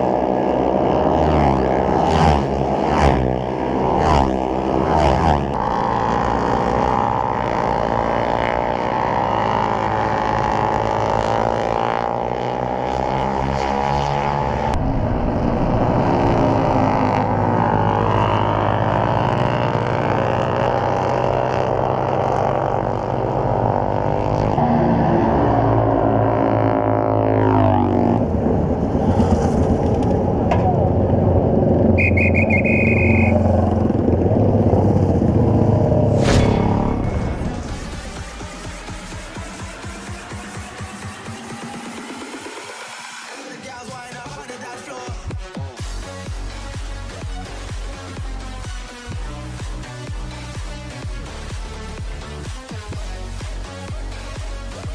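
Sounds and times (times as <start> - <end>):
motorcycle engine revving: 0.0 - 43.6
short high beep: 32.0 - 33.6.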